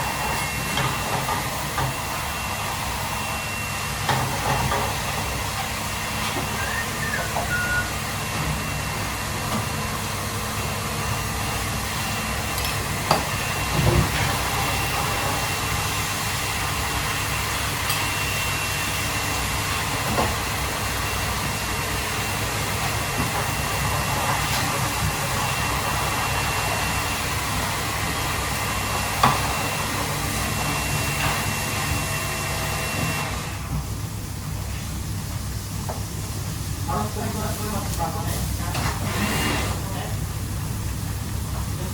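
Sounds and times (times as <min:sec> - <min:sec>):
thin high whine: 0:05.2 - 0:09.2.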